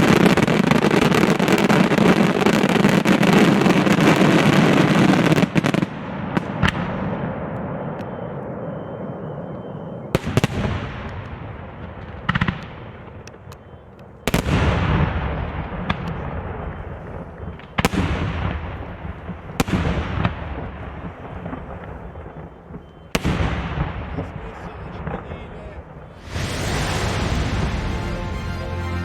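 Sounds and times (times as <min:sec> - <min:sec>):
fireworks bangs: 0:00.0 - 0:29.0
echoing rumble: 0:26.1 - 0:29.0.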